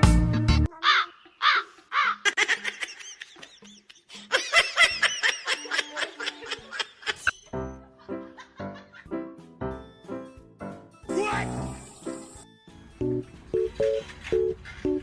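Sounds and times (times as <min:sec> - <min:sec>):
high-pitched giggling: 0:01.7 - 0:07.4.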